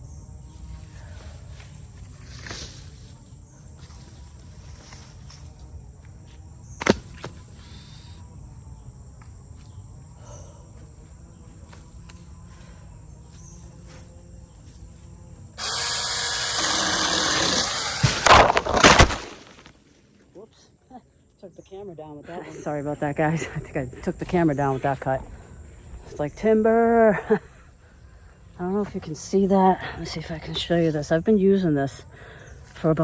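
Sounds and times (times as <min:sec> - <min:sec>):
high insect buzz: 0:00.0 - 0:33.0
mini chainsaw cutting branch: 0:00.8 - 0:08.2, 0:15.6 - 0:19.8
branch falling with cracking crash: 0:06.8 - 0:07.4, 0:17.1 - 0:20.0.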